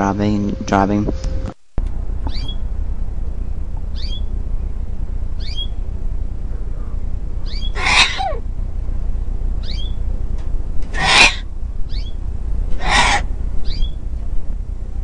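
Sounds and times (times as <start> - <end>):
steady low rumble: 0.0 - 15.0
high bird-like chirps: 2.3 - 2.6, 3.9 - 4.4, 5.4 - 5.8, 7.4 - 8.4, 9.6 - 10.0, 10.9 - 12.2, 12.8 - 14.0
harsh squawk: 7.5 - 8.4, 10.9 - 11.5, 12.8 - 14.0.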